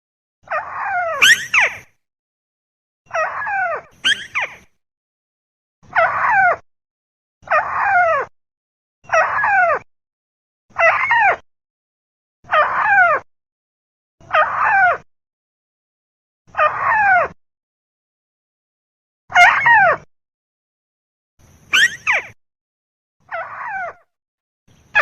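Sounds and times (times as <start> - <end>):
rail bird calling: 21.7 - 22.4.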